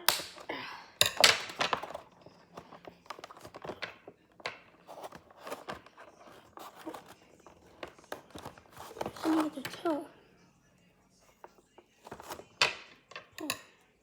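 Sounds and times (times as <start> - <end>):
packaging rustling: 1.5 - 10.0.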